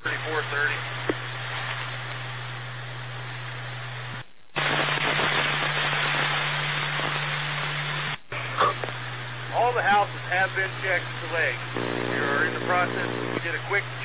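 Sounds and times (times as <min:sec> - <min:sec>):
radio static hiss: 0:00.0 - 0:14.0
steady low hum: 0:08.3 - 0:14.0.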